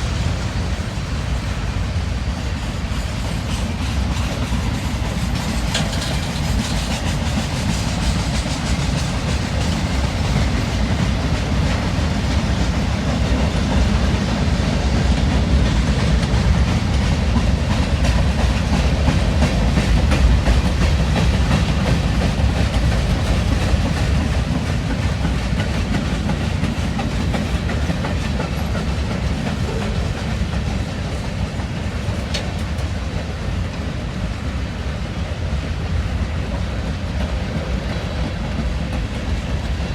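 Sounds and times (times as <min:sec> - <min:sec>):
train cars rumbling: 0:00.0 - 0:39.9
wheels clicking over rail joints: 0:02.4 - 0:34.2.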